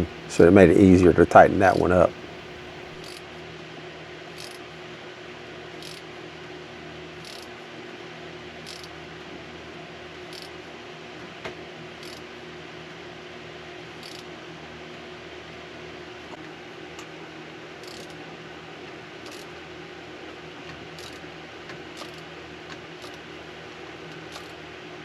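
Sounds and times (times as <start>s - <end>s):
steady low hum: 0.0s - 25.0s
socket ratchet clicking: 4.4s - 4.6s, 5.8s - 6.0s, 7.2s - 7.5s, 8.7s - 8.9s, 10.3s - 10.5s, 12.0s - 12.2s, 14.0s - 14.2s, 17.8s - 18.2s, 19.2s - 19.5s, 21.0s - 21.2s, 22.0s - 22.2s, 23.0s - 23.2s, 24.3s - 24.6s.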